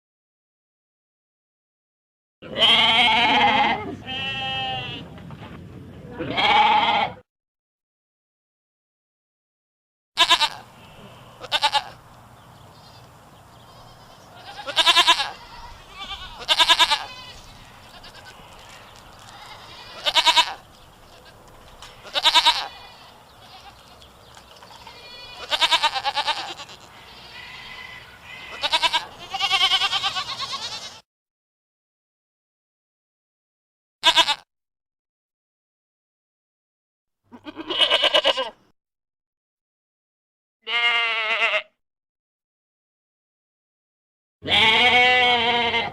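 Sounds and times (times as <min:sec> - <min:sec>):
goat bleating: 0:02.4 - 0:05.1, 0:06.1 - 0:07.2, 0:10.2 - 0:12.0, 0:12.8 - 0:31.0, 0:34.0 - 0:34.5, 0:37.3 - 0:38.6, 0:40.7 - 0:41.8, 0:44.4 - 0:45.9.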